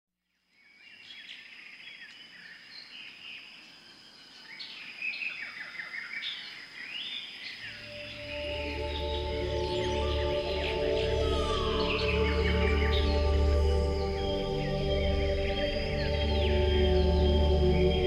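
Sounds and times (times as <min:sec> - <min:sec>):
birds chirping and whistling: 0:05.2 - 0:18.0
insects buzzing: 0:06.7 - 0:18.0
soft music with low drone: 0:07.8 - 0:18.0.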